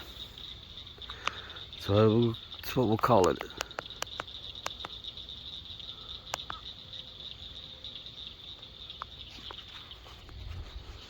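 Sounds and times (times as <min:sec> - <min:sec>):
crickets or frogs calling: 0:00.0 - 0:11.0
faint clicks: 0:01.0 - 0:01.4, 0:03.2 - 0:05.0, 0:06.3 - 0:06.6.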